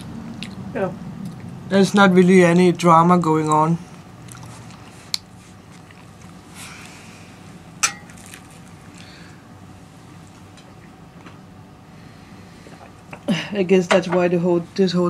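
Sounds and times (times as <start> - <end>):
soft chewing and biting: 0.0 - 1.6, 3.4 - 7.2, 8.1 - 9.4
sharp mouth clicks: 0.3 - 0.6.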